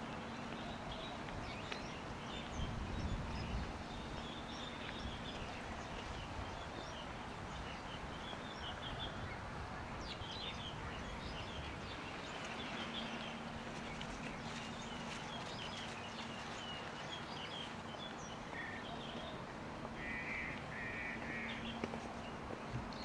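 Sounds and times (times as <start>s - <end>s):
birds chirping: 0.0s - 23.0s
harsh rasping bird calls: 20.0s - 21.8s.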